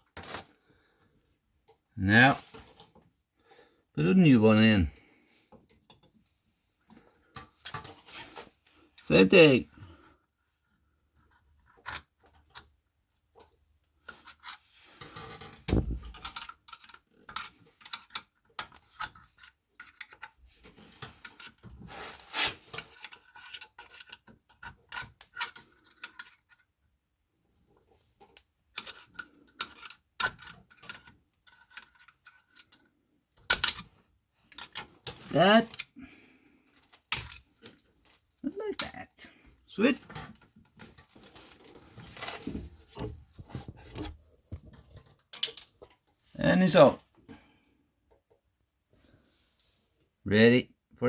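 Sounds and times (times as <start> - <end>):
small metallic clicks and scrapes: 11.2 - 26.9, 27.7 - 36.0, 40.0 - 46.3.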